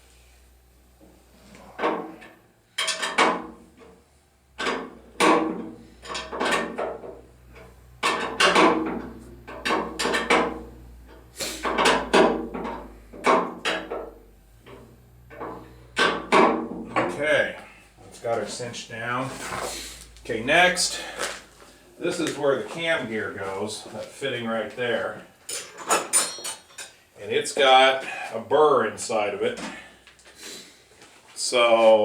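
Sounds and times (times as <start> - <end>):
tools clanking on metal: 1.7 - 4.0, 4.6 - 17.2, 25.4 - 27.0.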